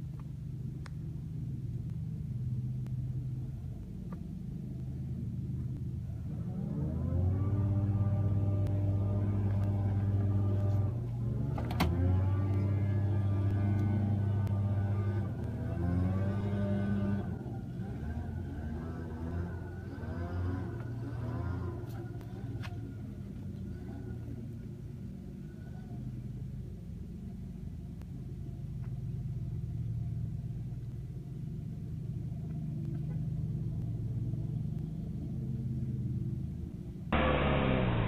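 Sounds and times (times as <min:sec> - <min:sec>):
vehicle engine idling: 0:00.0 - 0:06.7.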